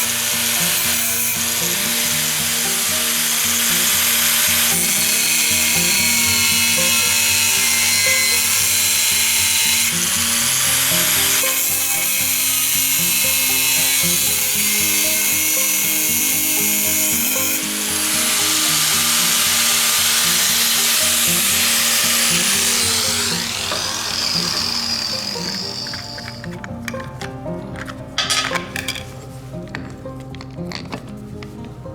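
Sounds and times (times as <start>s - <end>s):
power tool whining: 0.0s - 28.8s
background music: 0.0s - 31.9s.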